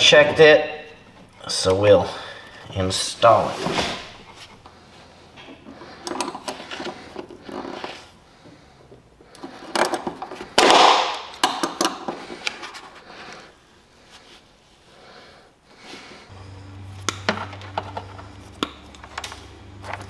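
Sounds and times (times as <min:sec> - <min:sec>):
hands handling parts and tools: 0:00.0 - 0:14.4, 0:16.4 - 0:20.0
loud scraping rush: 0:00.1 - 0:04.6.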